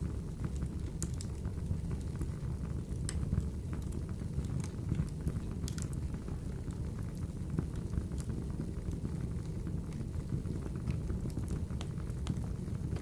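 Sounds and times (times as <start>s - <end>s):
low rumble of flames: 0.0s - 13.0s
logs popping and crackling: 10.8s - 13.0s.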